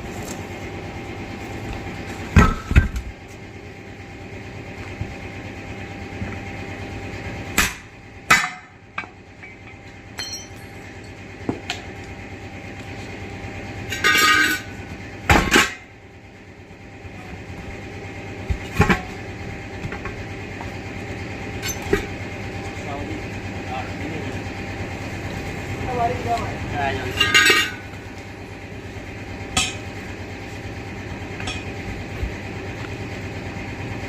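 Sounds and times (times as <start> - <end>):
ringing metal clatter: 10.2 - 10.8, 27.0 - 27.8.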